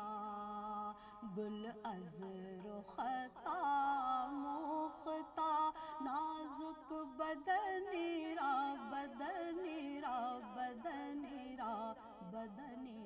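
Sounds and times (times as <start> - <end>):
person singing devotional song: 0.0 - 13.0.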